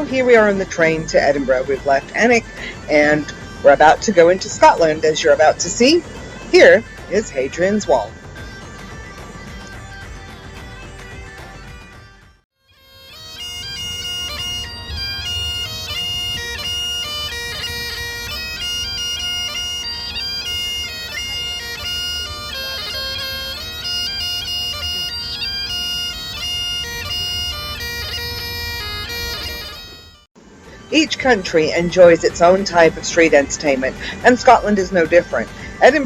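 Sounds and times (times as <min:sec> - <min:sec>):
bagpipes playing: 0:00.0 - 0:36.0
low rumble: 0:14.2 - 0:19.0.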